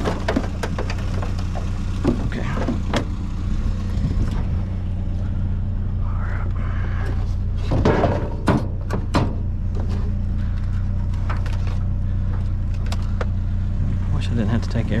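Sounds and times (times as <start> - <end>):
sharp knocks and clatters: 0.0 - 3.2, 7.6 - 10.2
vehicle engine idling: 0.0 - 15.0.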